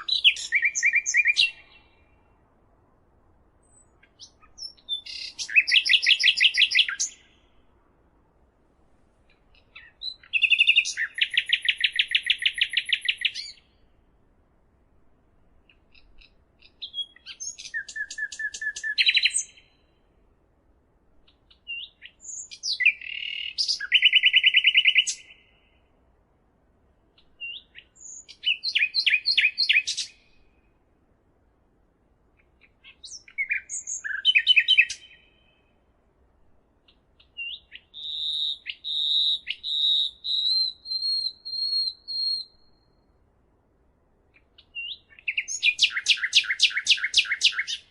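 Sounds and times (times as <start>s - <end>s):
songbird singing trills: 0.0s - 2.4s, 3.6s - 7.7s, 9.3s - 14.0s, 15.6s - 20.1s, 21.2s - 25.9s, 27.2s - 30.8s, 32.4s - 35.8s, 36.8s - 43.2s, 44.3s - 47.9s.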